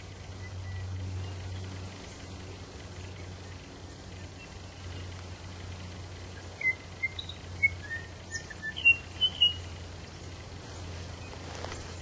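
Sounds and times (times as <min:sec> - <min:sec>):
low hum: 0:00.0 - 0:12.0
bird whistling: 0:06.4 - 0:09.8.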